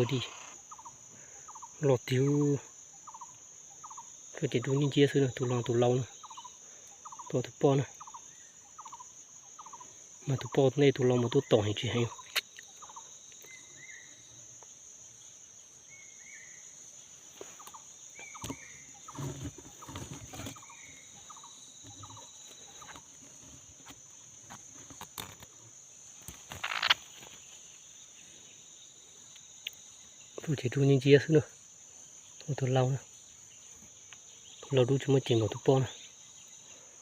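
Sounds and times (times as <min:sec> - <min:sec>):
birds chirping: 0:00.0 - 0:37.0
insect drone: 0:00.0 - 0:37.0.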